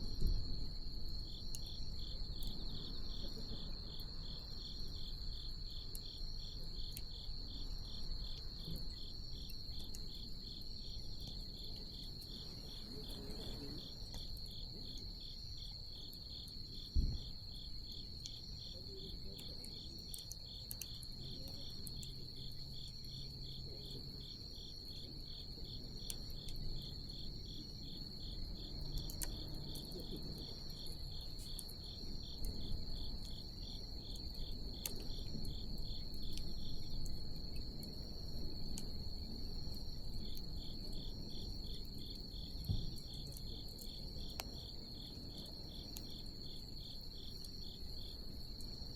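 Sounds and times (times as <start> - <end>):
crickets chirping: 0.0 - 48.9
bonfire crackling: 26.0 - 48.9.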